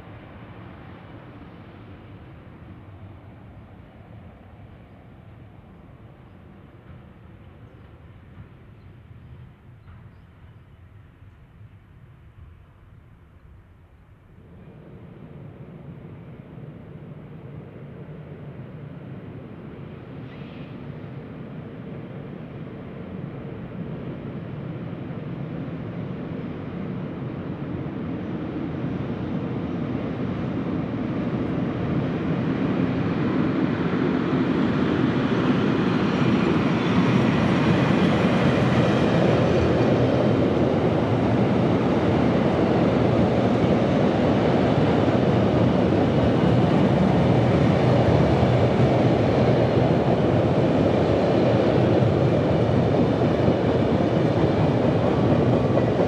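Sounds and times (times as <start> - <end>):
train wheels rumbling on rails: 0.0 - 11.8, 14.4 - 56.0
diesel locomotive: 0.0 - 56.0.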